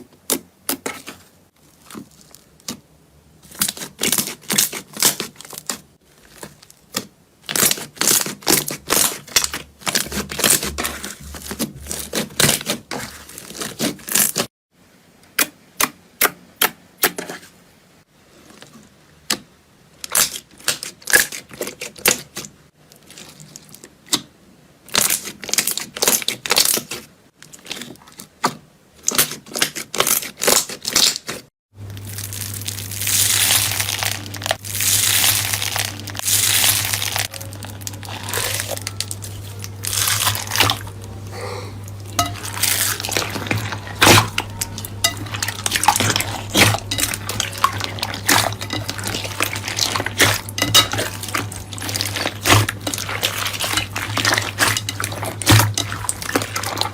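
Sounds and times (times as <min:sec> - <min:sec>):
slime squishing and crackling: 0:00.7 - 0:02.8, 0:03.4 - 0:14.5, 0:29.0 - 0:41.3, 0:41.9 - 0:56.9
steady low hum: 0:31.8 - 0:56.9.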